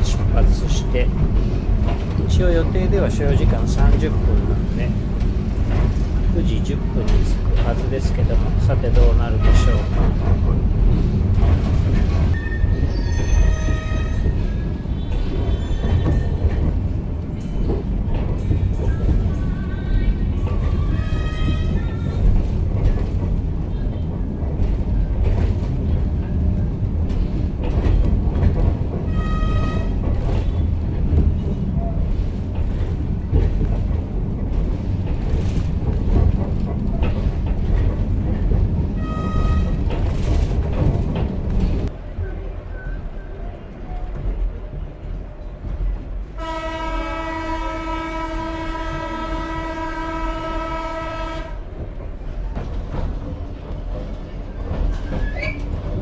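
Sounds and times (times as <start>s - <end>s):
train carriage rumbling: 0.0s - 56.0s
train horn: 29.1s - 30.0s, 46.4s - 51.6s.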